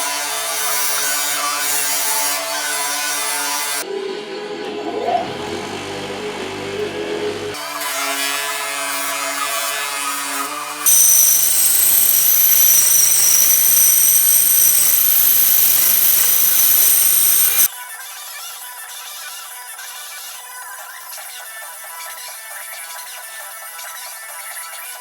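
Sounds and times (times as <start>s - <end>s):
machine hum: 3.9s - 7.6s, 10.9s - 17.7s
hissing power tool whine: 10.9s - 17.7s.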